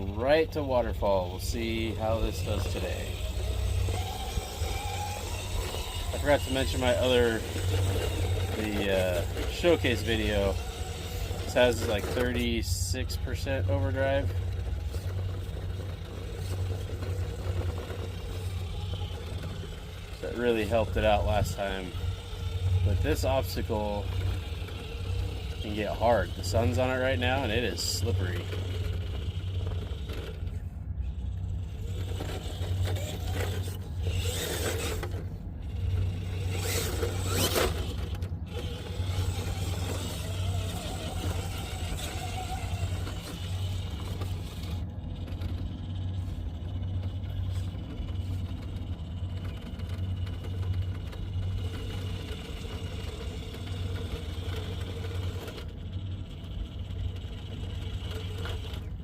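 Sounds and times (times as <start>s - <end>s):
electric motor and gears whining: 0.0s - 59.0s.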